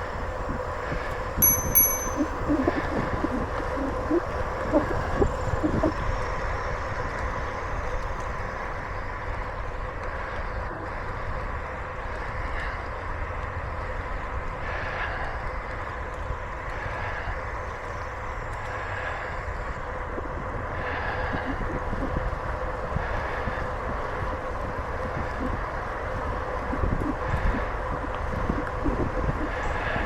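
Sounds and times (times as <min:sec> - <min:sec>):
bicycle tyres rolling on pavement: 0:06.7 - 0:20.9
wind on microphone: 0:20.2 - 0:30.0.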